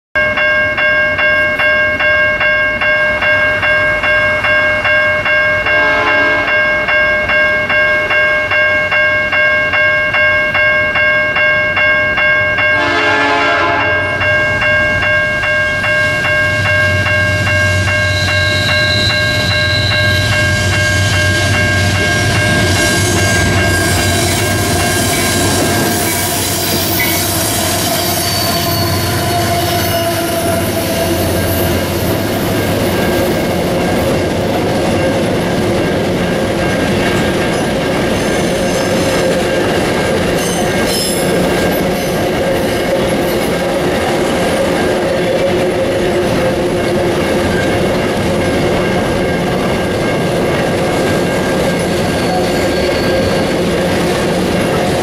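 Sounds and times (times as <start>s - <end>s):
level crossing bell ringing: 0.2s - 27.3s
train horn: 5.7s - 6.8s, 12.7s - 14.2s, 18.1s - 32.1s
diesel locomotives rumbling: 12.0s - 55.0s
high wheel squeal: 17.6s - 33.1s, 38.0s - 39.6s, 40.3s - 43.6s, 51.7s - 54.1s.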